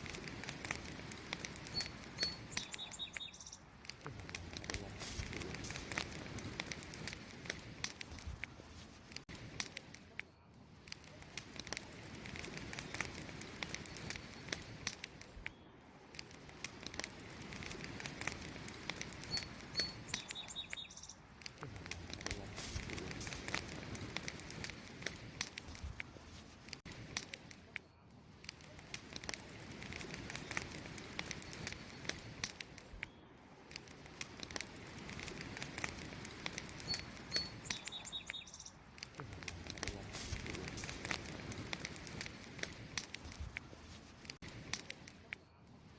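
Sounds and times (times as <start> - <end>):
campfire crackling and popping: 0.0 - 45.9
short high bird chirps: 1.7 - 3.7, 19.3 - 21.2, 36.8 - 38.8.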